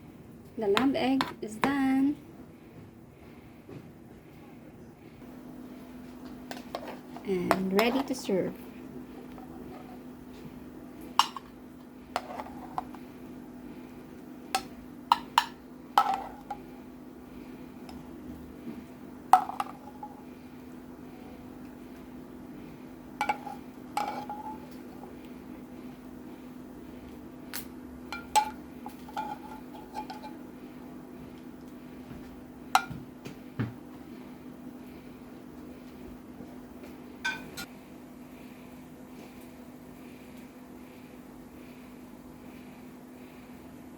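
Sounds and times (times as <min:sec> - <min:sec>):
steady low hum: 0:00.0 - 0:43.9
utensil clinking against dishes: 0:37.2 - 0:37.7.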